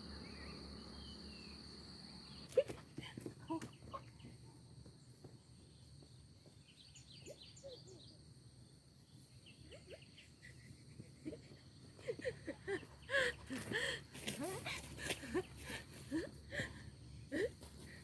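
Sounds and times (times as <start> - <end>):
faint bird chirps: 3.4 - 11.9.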